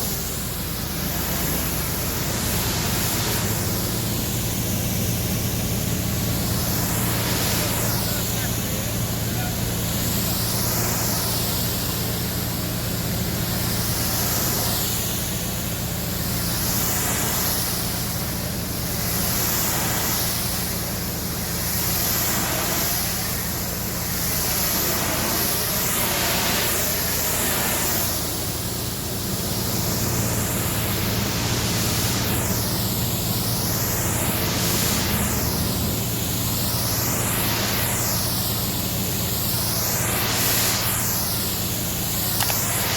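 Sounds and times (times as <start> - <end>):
pressure washer spraying water: 0.0 - 42.9
pump motor hum: 0.0 - 42.9.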